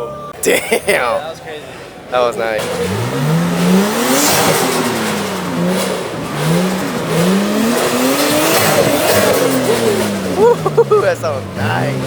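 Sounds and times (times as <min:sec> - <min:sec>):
car engine revving: 0:01.2 - 0:12.0.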